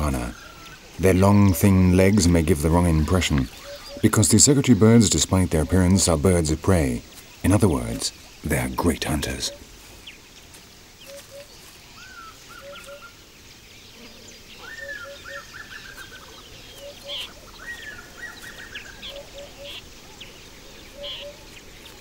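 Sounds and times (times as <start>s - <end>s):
soft low bird notes: 13.9s - 22.0s.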